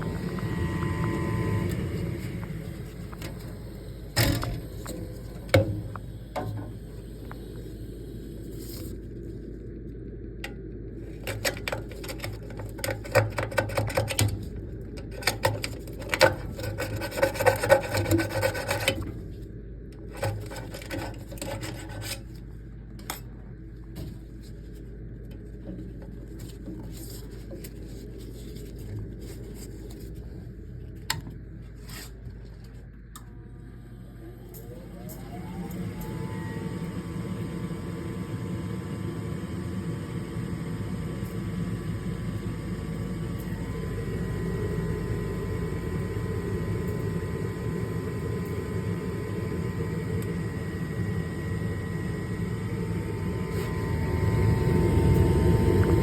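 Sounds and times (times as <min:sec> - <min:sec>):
steady low hum: 0:00.0 - 0:56.0
rubbing and scraping: 0:11.1 - 0:19.4, 0:20.0 - 0:22.5.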